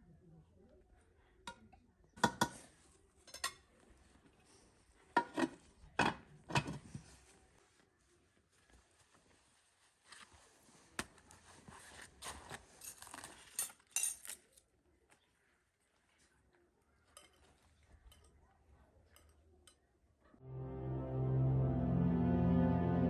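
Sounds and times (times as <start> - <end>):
small hard objects clinking: 12.8 - 14.6
background music: 20.4 - 23.0.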